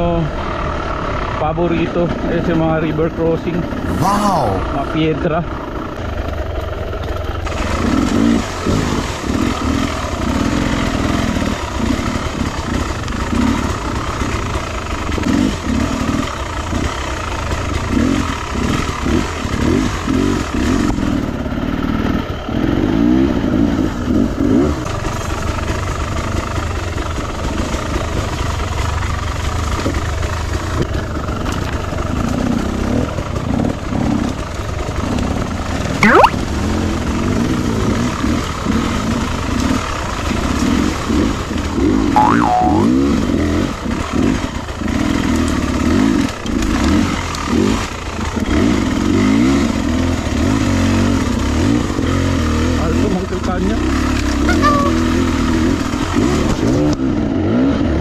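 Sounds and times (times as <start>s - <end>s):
dirt bike engine revving: 7.4s - 17.1s, 17.7s - 21.2s, 36.1s - 58.0s.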